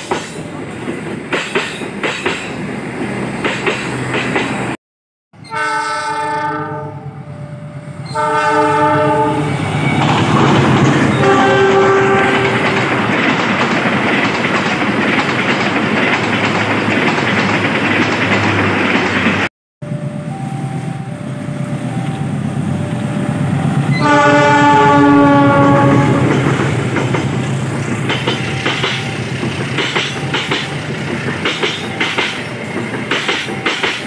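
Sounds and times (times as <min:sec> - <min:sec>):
passing train rumble: 0:00.0 - 0:04.8, 0:05.4 - 0:34.0
train wheels clattering over rails: 0:00.0 - 0:04.8, 0:09.6 - 0:19.5, 0:25.5 - 0:34.0
train horn blasts: 0:05.4 - 0:07.2, 0:08.0 - 0:10.0, 0:11.1 - 0:12.9, 0:23.4 - 0:26.6.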